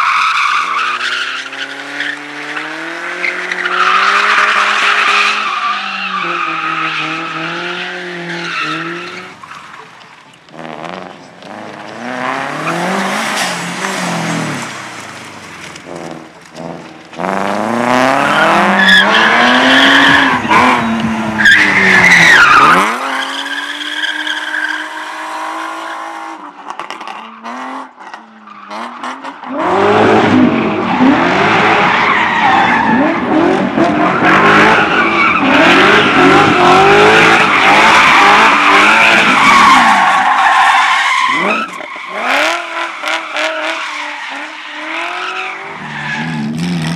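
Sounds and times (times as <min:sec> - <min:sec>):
race car engine revving: 0:28.7 - 0:40.1.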